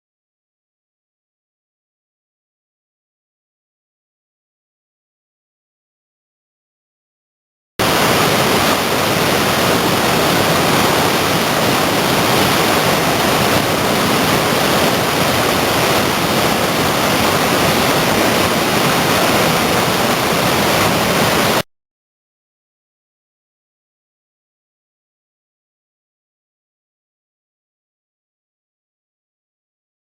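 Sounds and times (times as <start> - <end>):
whitewater rushing: 7.8 - 21.6.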